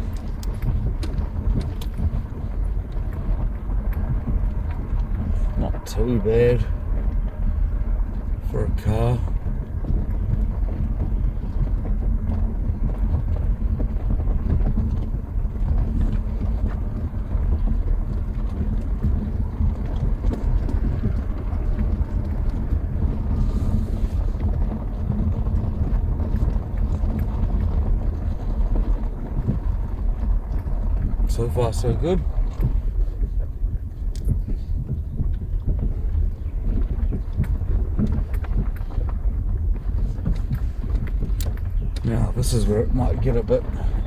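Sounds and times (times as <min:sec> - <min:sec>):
car driving over rough track: 0:00.0 - 0:44.0
small ticks and rattles: 0:00.0 - 0:44.0.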